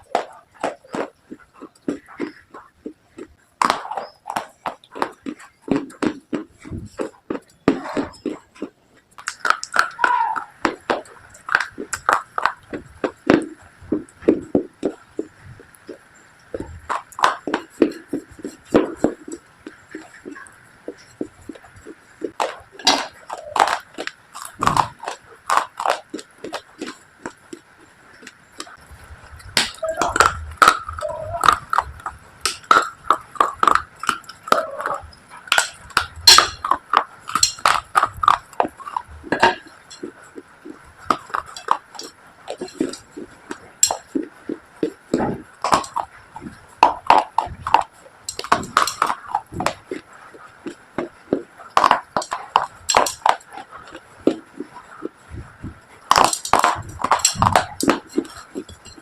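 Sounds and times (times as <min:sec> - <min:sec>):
brittle crunches of chewing: 0:14.5 - 0:28.8, 0:29.6 - 0:55.2.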